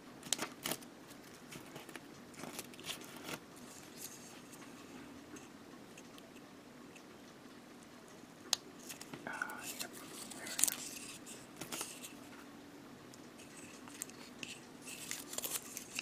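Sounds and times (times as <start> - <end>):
scratchy rustling of plastic parts: 0.2 - 5.5, 8.8 - 12.4, 13.3 - 16.0.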